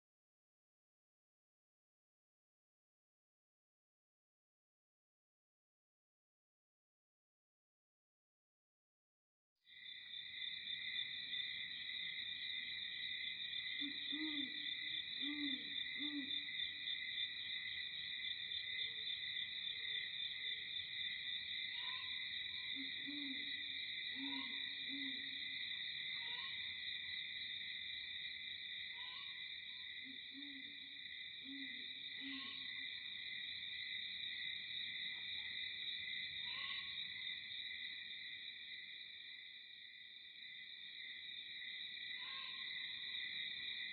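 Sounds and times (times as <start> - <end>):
insect chorus: 9.7 - 43.9
bird hooting: 13.8 - 14.6, 15.2 - 16.4.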